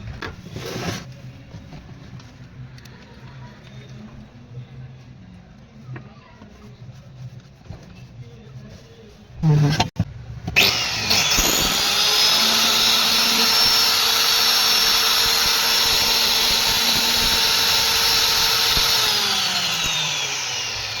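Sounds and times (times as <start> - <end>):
electric motor whining: 10.6 - 21.0.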